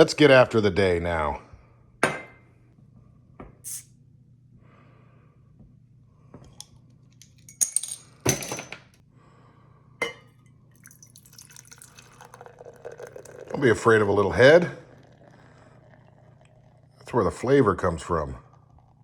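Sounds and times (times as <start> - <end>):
beer pouring into a glass: 10.7 - 19.0.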